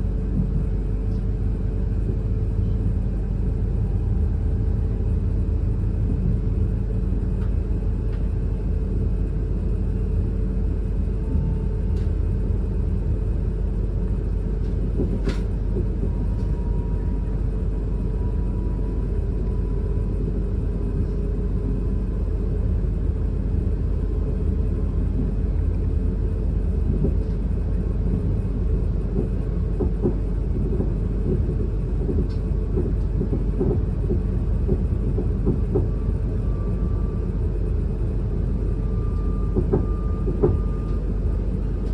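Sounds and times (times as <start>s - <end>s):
train wheels rumbling: 0.0s - 41.9s
faint even whine: 35.6s - 41.9s.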